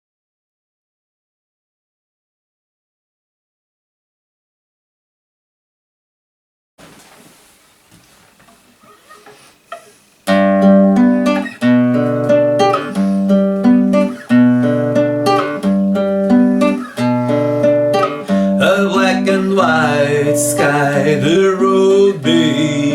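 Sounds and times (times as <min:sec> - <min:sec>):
faint hiss: 0:06.8 - 0:22.9
acoustic guitar strumming: 0:08.8 - 0:22.9.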